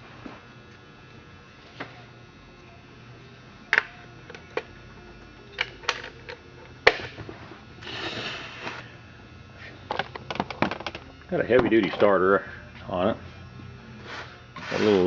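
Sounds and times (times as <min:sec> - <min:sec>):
metal parts clicking and knocking: 0:05.6 - 0:07.1
scraping rustle: 0:14.0 - 0:15.0.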